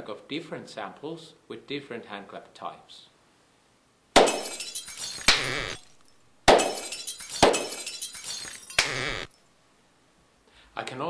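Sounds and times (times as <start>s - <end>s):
sampled crashes with shattering tail: 4.2s - 9.0s.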